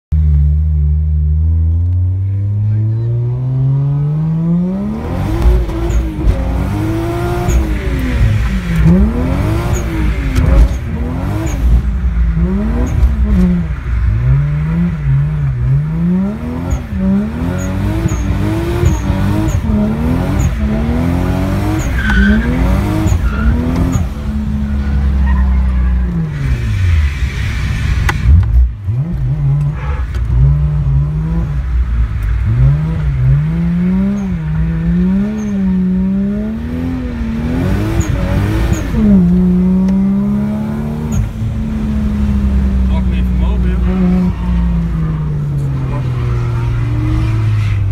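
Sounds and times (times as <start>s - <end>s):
car engine revving: 0.2s - 47.9s
tyres squealing: 21.7s - 26.3s.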